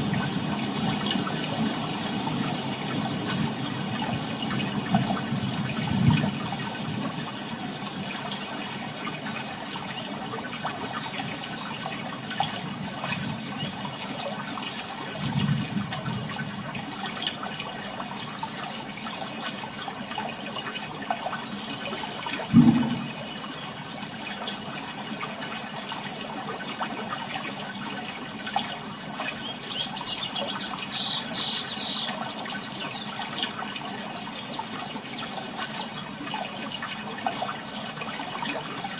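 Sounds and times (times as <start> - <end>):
sea water washing over sand: 0.0 - 18.0.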